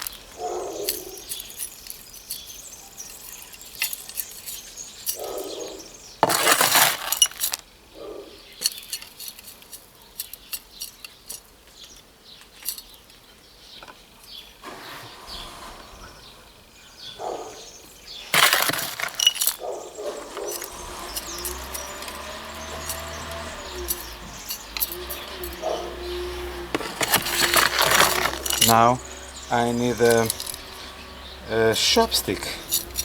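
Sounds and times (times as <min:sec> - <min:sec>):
metallic clinks of tools and wire: 0:00.0 - 0:07.6, 0:08.6 - 0:13.3, 0:18.3 - 0:33.0
rustling handling noise: 0:00.0 - 0:07.7, 0:08.5 - 0:16.8, 0:17.8 - 0:33.0.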